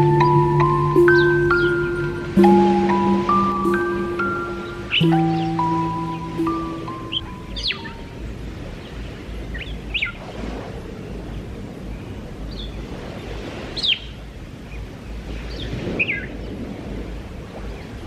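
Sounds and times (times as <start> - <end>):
birds chirping: 0.0 - 8.1.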